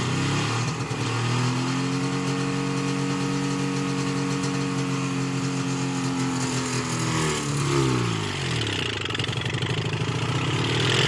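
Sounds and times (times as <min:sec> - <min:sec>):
snowmobile two-stroke engine revving: 0:00.0 - 0:11.0.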